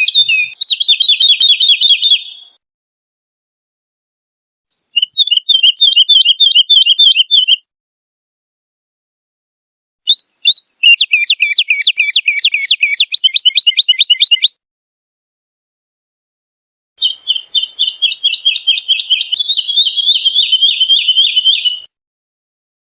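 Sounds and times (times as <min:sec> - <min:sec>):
woodlark singing: 0:00.0 - 0:02.6, 0:04.7 - 0:07.7, 0:10.1 - 0:14.6, 0:17.0 - 0:21.9.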